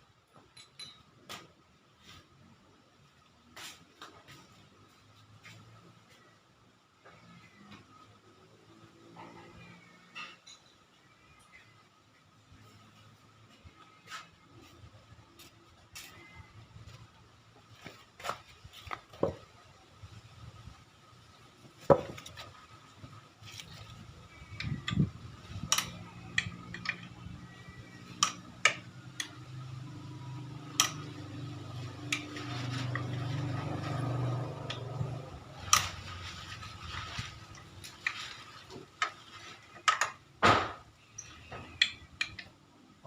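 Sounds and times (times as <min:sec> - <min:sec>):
metallic clinks of tools: 0:00.5 - 0:01.1.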